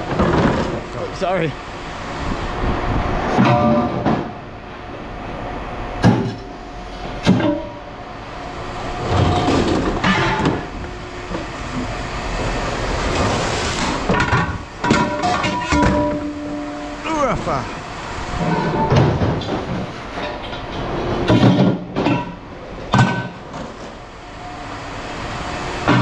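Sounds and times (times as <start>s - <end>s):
mechanical rumble: 0.0s - 26.0s
sharp metallic knocks: 14.1s - 16.9s.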